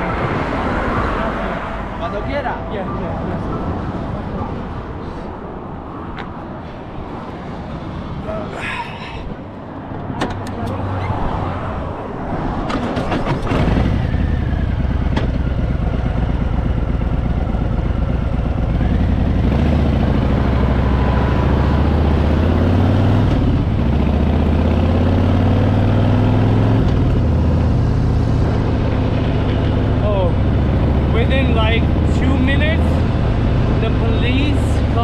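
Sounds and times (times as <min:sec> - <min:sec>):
sharp clicks and knocks: 0:10.0 - 0:10.8
vehicle engine accelerating: 0:12.7 - 0:35.0.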